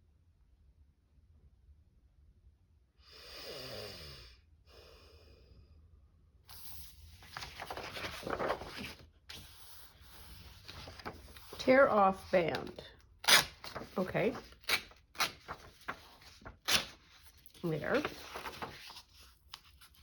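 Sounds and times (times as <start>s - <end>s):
paper rustling and crinkling: 6.5s - 20.0s.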